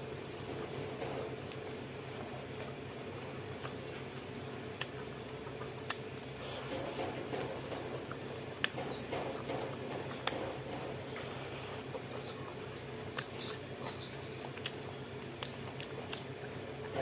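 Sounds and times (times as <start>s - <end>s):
low steady hum: 0.0s - 17.0s
wet chewing and lip-smacking: 0.5s - 17.0s
sharp mouth clicks: 5.8s - 6.3s.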